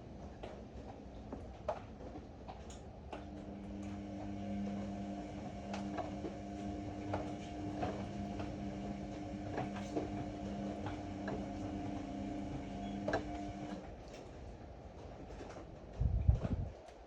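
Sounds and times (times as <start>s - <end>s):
washer-dryer motor hum: 0.0s - 16.7s.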